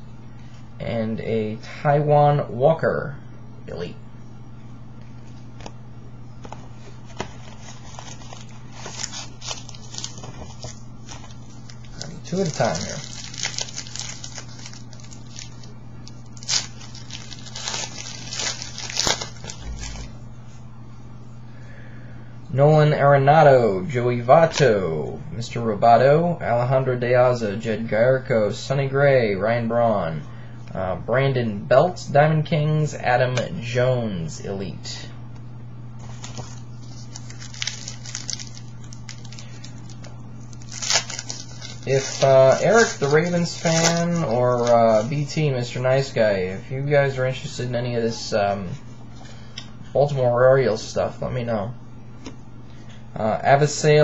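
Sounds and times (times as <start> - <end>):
low hum: 2.4 - 31.8
cards being handled: 6.4 - 15.7
wrappers tearing and crinkling: 6.8 - 20.2, 36.0 - 45.4.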